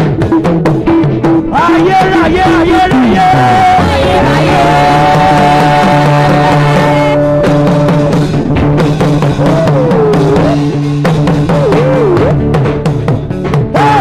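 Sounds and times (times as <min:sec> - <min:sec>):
drum kit beating: 0:00.0 - 0:14.0
held chords: 0:00.0 - 0:14.0
sliding melodic line: 0:01.6 - 0:11.3.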